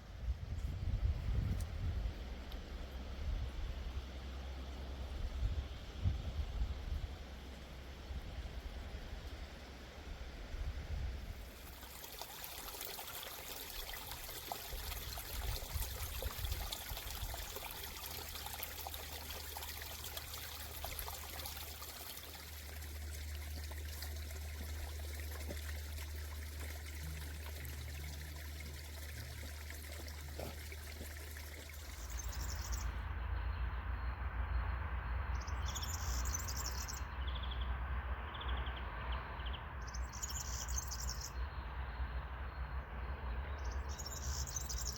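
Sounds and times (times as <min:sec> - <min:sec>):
stream trickling and splashing: 0:00.0 - 0:33.1, 0:35.3 - 0:37.2, 0:39.8 - 0:41.4, 0:43.6 - 0:44.9
birds chirping: 0:23.1 - 0:33.0.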